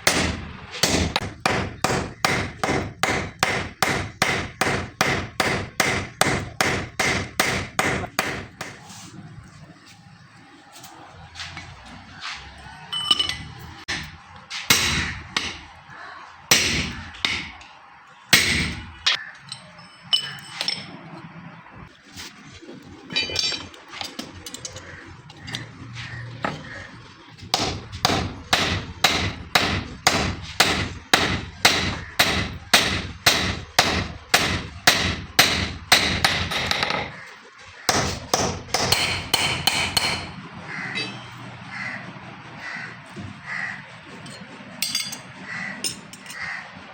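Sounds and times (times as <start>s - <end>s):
hammer striking metal on anvil: 0.0s - 8.8s, 12.9s - 15.7s, 16.5s - 17.7s, 18.4s - 20.9s, 27.6s - 37.1s, 37.9s - 41.4s, 44.3s - 46.5s.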